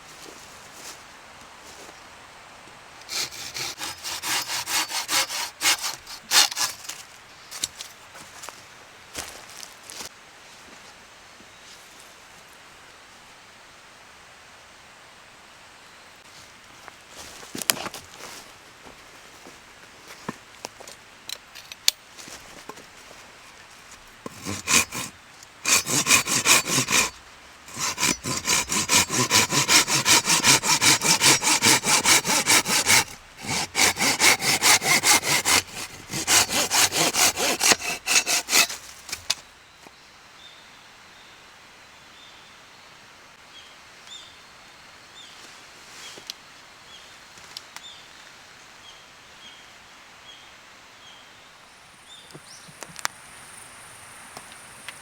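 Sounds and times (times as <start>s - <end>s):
hand saw cutting wood: 3.0s - 7.0s, 24.2s - 39.4s.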